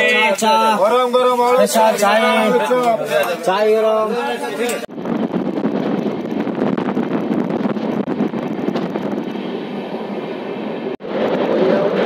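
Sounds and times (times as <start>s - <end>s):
wind on microphone: 4.5s - 12.0s.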